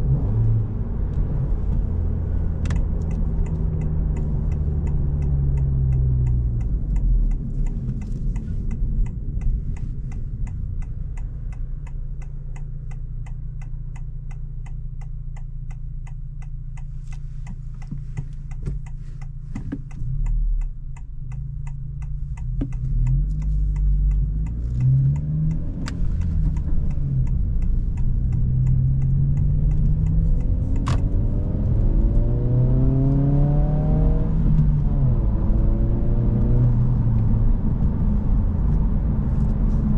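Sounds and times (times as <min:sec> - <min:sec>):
car engine hum: 0:00.0 - 0:39.9
turn signal relay ticking: 0:01.1 - 0:32.2.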